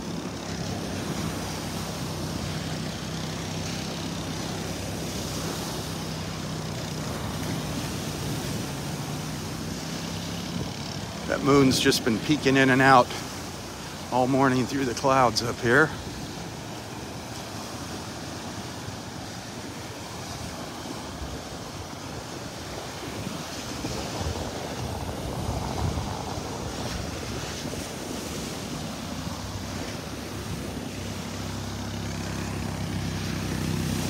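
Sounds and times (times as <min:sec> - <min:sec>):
low engine hum: 0:00.0 - 0:34.0
surf washing onto beach: 0:00.0 - 0:34.0
wind on microphone: 0:18.8 - 0:34.0.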